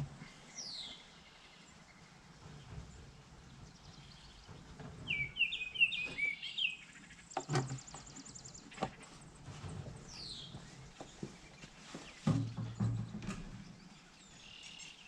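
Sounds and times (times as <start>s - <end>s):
songbirds chirping: 0.0s - 15.0s
bird trill: 5.1s - 7.0s.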